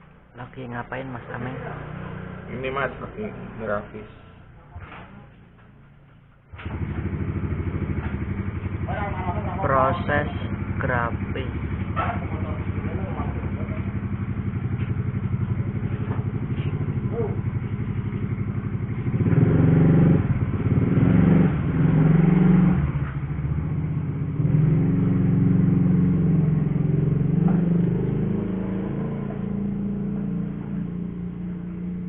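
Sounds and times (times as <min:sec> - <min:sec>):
small engine running: 0:06.5 - 0:23.5.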